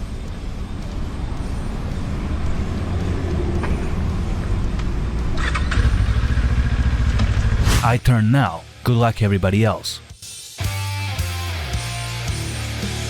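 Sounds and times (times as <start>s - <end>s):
vehicle engine and road rumble: 0.0s - 7.9s.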